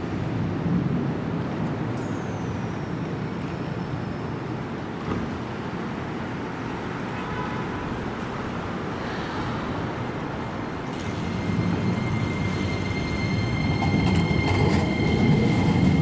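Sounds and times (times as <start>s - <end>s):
train low rumble: 8.0s - 16.0s
train high whine: 8.5s - 16.0s.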